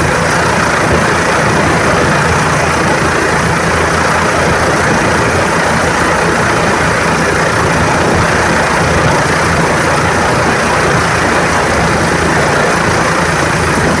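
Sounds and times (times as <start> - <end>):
helicopter engine and rotor: 0.0 - 14.0.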